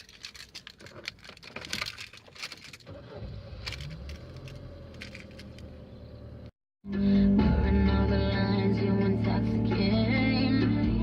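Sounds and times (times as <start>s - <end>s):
rustling handling noises: 0.0s - 2.9s.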